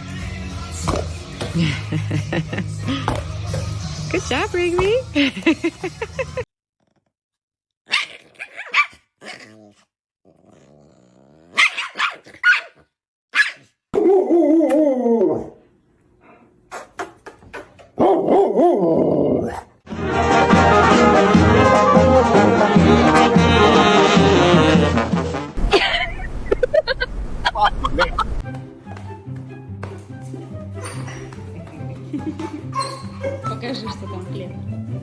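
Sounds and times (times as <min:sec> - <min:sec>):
music: 0:00.0 - 0:06.5, 0:19.9 - 0:25.6, 0:28.4 - 0:35.0.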